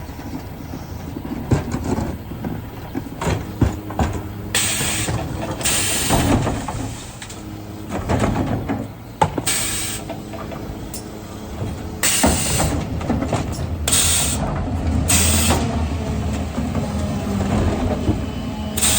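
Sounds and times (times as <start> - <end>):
truck engine and hydraulics: 0.0 - 18.9
air hissing bursts: 4.6 - 7.2, 9.5 - 10.1.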